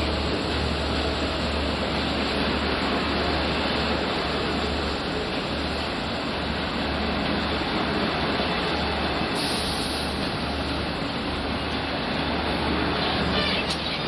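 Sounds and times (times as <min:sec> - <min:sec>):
diesel train engine rumble: 0:00.0 - 0:14.0
loud even hiss: 0:09.3 - 0:10.4.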